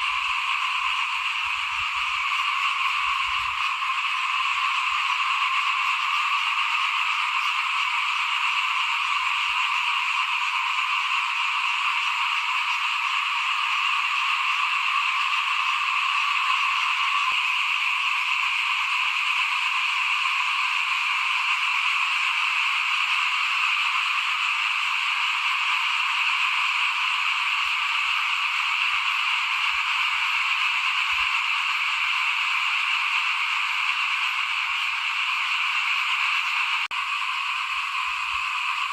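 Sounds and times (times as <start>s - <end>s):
chorus of frogs calling: 0.0s - 38.9s.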